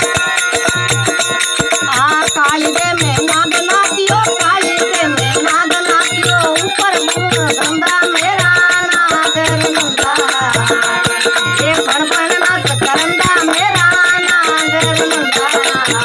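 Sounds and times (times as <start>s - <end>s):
small cymbals jingling: 0.0s - 16.0s.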